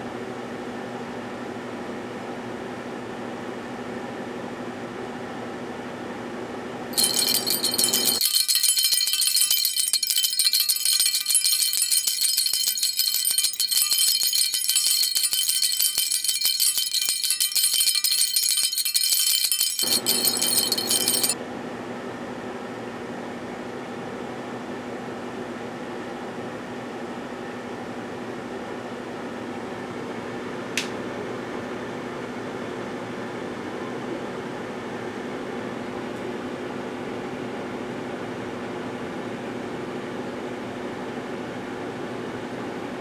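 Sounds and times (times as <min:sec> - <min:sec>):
high-pitched jingling rattle: 0:07.0 - 0:21.4
microwave oven humming: 0:21.4 - 0:43.0.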